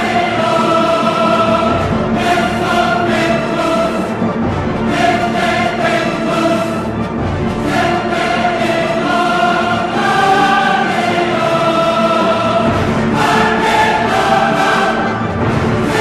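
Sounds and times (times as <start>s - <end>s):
choir singing long held notes: 0.0s - 16.0s.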